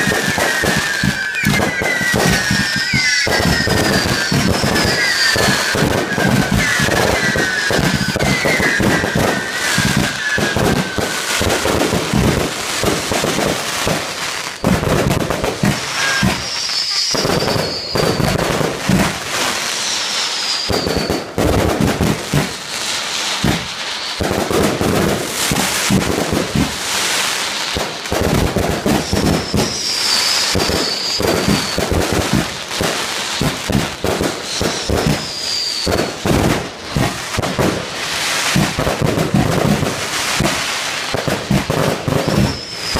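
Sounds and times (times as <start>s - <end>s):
firework shells whistling: 0.0s - 42.9s
fireworks bangs and crackling: 0.0s - 42.9s.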